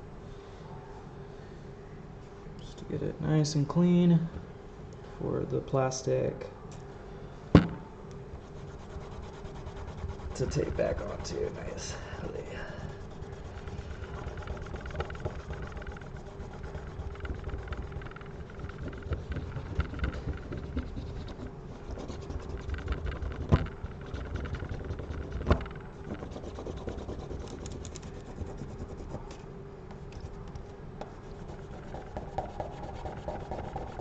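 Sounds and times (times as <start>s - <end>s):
sharp knocks: 7.6s - 7.9s
scrubbing on plastic frame: 12.8s - 29.2s.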